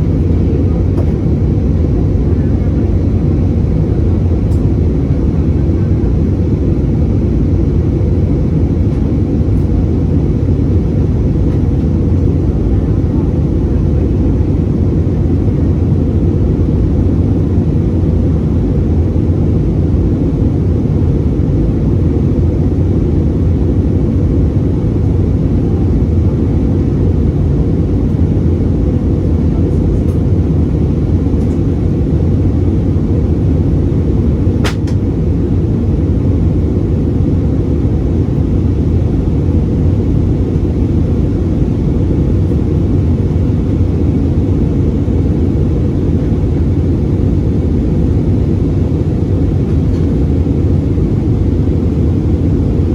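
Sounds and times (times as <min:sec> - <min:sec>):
airplane cabin engine rumble: 0:00.0 - 0:52.9
sharp click: 0:34.6 - 0:35.0.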